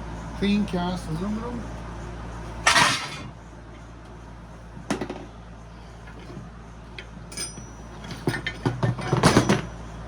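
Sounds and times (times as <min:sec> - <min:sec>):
metal scrap clinking: 0:02.7 - 0:03.3, 0:07.3 - 0:09.7.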